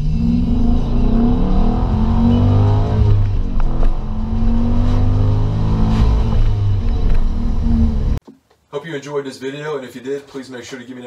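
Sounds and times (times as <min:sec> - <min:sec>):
car engine accelerating hard: 0:00.0 - 0:08.2.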